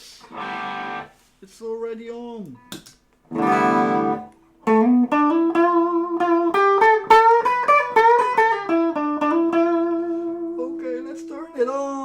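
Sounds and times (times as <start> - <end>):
electric guitar melody: 0.3 - 1.1, 3.3 - 12.0.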